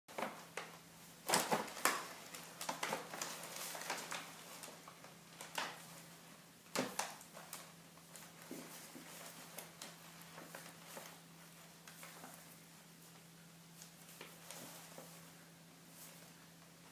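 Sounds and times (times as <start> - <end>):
bag rustling and crinkling: 1.2 - 6.2.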